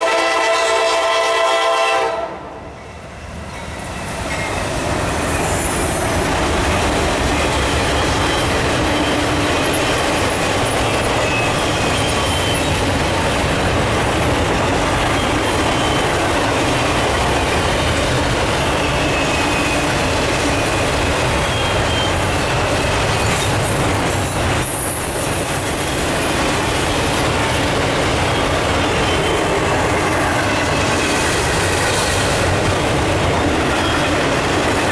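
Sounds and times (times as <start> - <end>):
train wheels rumbling on rail: 0.0 - 34.9
faint high wheel squeals: 10.7 - 12.8, 18.6 - 23.6.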